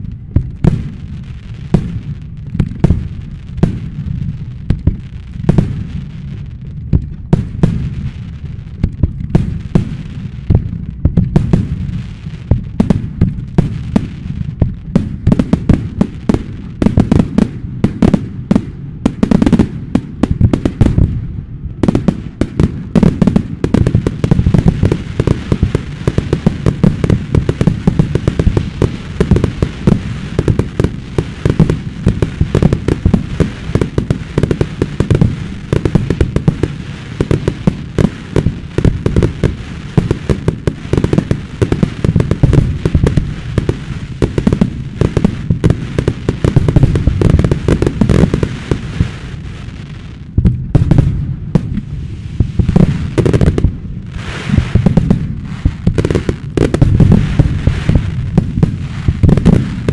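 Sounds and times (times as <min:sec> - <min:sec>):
fireworks deep booms: 0:00.0 - 0:59.9
fireworks sharp bangs: 0:00.0 - 0:59.9.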